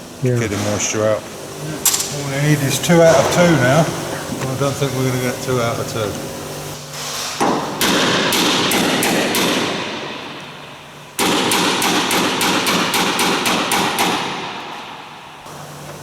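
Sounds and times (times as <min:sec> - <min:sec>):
rapid hammering on metal: 0:07.4 - 0:10.2, 0:11.2 - 0:15.0.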